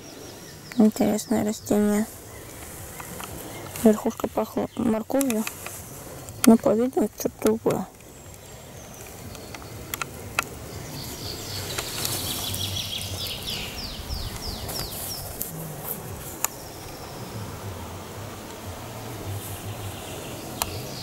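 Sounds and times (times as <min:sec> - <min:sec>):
steady low rumble: 0:00.0 - 0:21.0
sharp clicks: 0:03.0 - 0:13.2.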